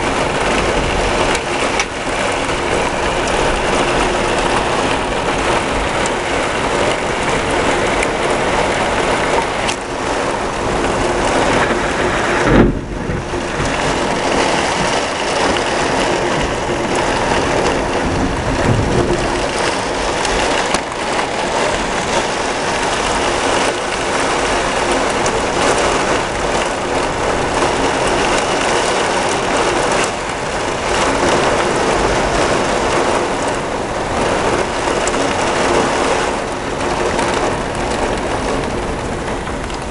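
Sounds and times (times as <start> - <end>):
heavy rain pouring: 0.0 - 39.9
loud thump: 12.4 - 13.3.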